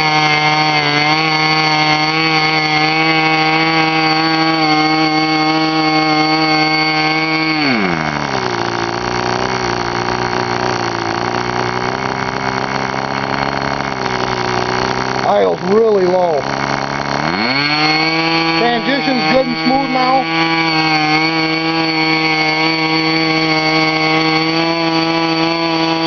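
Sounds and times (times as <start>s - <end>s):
model airplane engine running: 0.0s - 26.0s.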